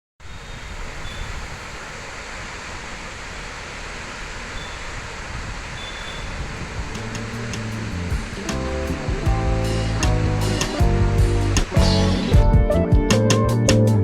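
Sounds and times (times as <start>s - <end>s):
waterfall rushing: 0.2s - 12.4s
wind rumble on microphone: 4.4s - 12.7s.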